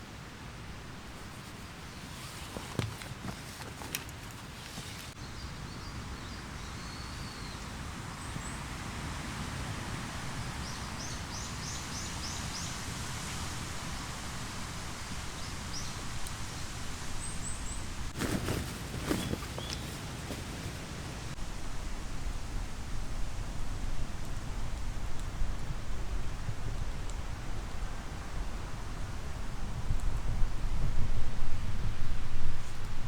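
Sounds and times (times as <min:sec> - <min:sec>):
wind rustling through trees: 0:00.0 - 0:33.0
birds chirping: 0:18.2 - 0:21.4.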